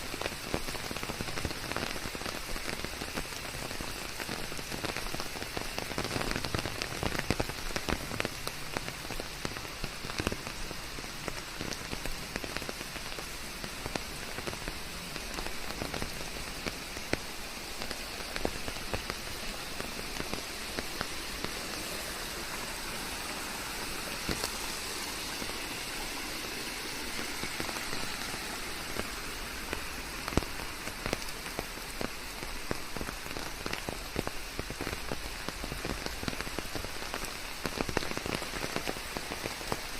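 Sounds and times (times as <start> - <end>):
rain falling on leaves: 0.0 - 39.9
raindrops pattering: 0.0 - 39.9.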